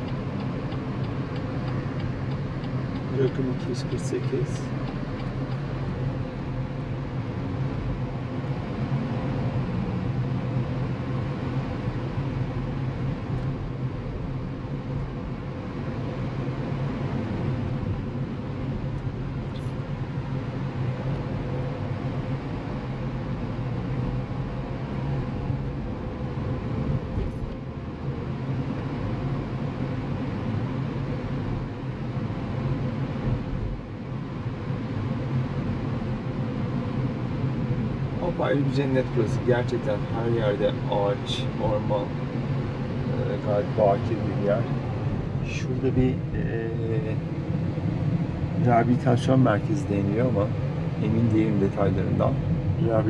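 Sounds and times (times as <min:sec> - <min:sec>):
faint ticks: 0:00.0 - 0:03.4
car engine and tyre noise: 0:00.0 - 0:53.0.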